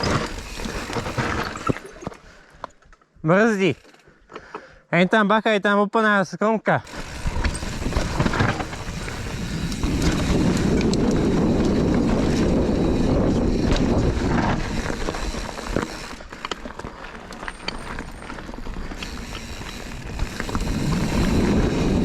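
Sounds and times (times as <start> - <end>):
tyres rolling over dirt: 0.0 - 2.2, 6.9 - 22.0
bike clicks and rattles: 0.0 - 4.7, 6.9 - 22.0
wind rushing over microphone: 6.9 - 16.2, 19.7 - 22.0.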